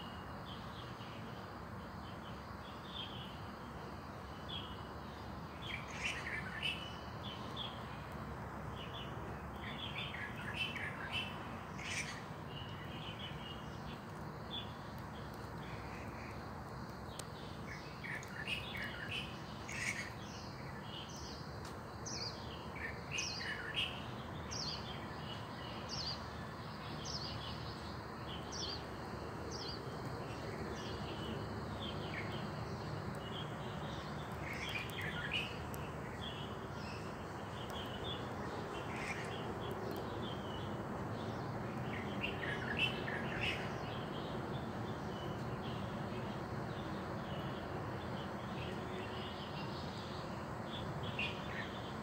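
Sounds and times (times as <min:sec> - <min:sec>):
low background noise: 0:00.0 - 0:52.0
small birds chirping: 0:00.0 - 0:52.0.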